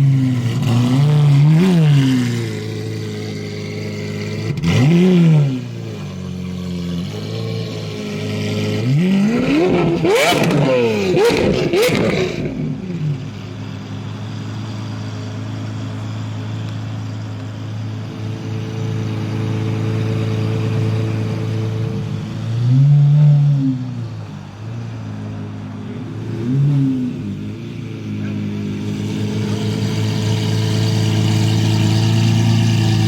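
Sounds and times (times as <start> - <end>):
car engine idling and revving: 0.0 - 33.0
exhaust cracks: 8.8 - 13.5.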